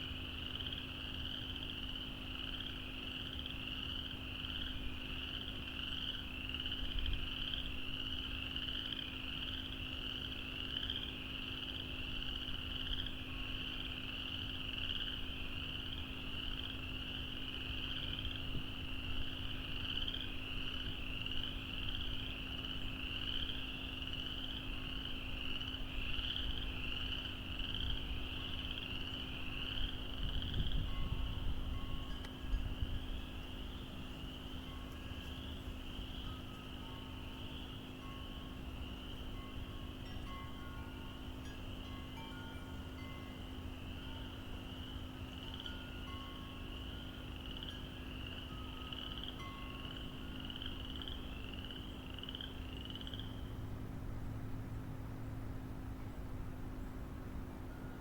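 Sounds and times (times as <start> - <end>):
frogs calling: 0.0 - 53.8
steady low hum: 0.0 - 58.0.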